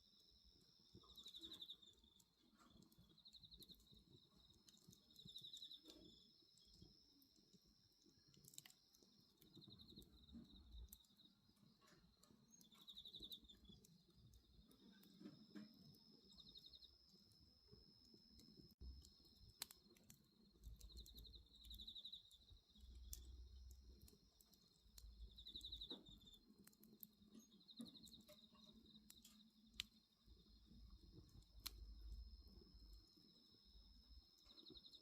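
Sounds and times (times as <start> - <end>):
bonfire crackling: 0.0 - 35.0
night insects chirring: 0.0 - 35.0.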